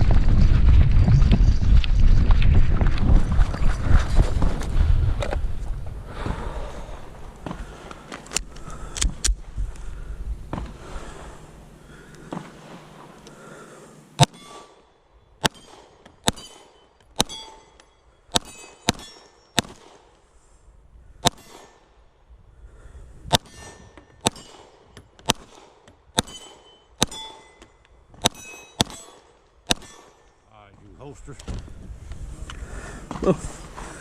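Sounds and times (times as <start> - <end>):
gunshots: 14.2 - 14.7, 15.4 - 17.6, 18.3 - 20.1, 23.3 - 27.5, 28.2 - 30.2
steel target ringing: 15.4 - 19.7, 26.2 - 29.2.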